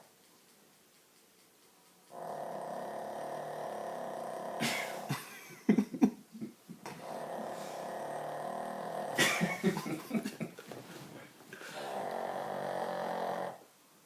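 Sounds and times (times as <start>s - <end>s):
dog snoring: 2.1s - 5.1s, 6.9s - 9.3s, 11.7s - 13.6s.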